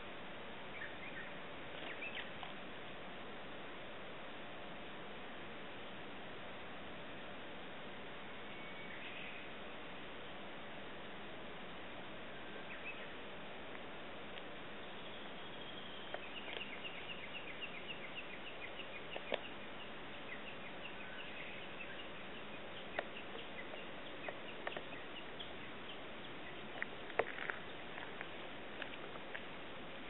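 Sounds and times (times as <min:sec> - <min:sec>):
steady outdoor hiss: 0:00.0 - 0:30.0
bird chirping: 0:00.7 - 0:02.4, 0:14.8 - 0:28.5.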